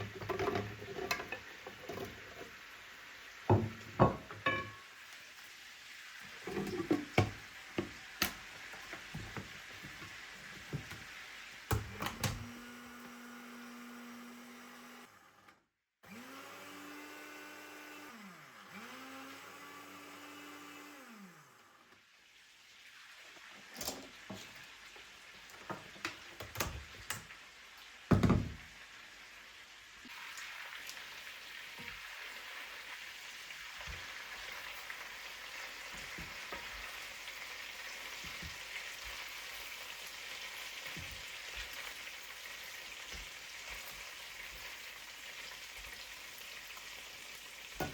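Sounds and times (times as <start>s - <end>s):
kitchen appliance motor running: 0.0s - 2.5s, 11.7s - 21.9s
kitchenware knocks and clatters: 0.0s - 2.5s, 3.5s - 4.9s, 6.4s - 11.1s, 28.1s - 28.7s.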